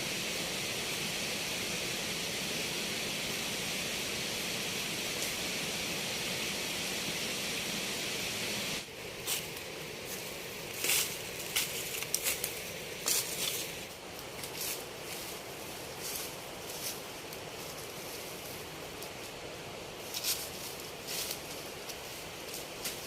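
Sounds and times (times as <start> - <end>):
steady hiss: 0.0 - 23.0
short rustles and crackles: 9.2 - 19.3, 20.0 - 23.0.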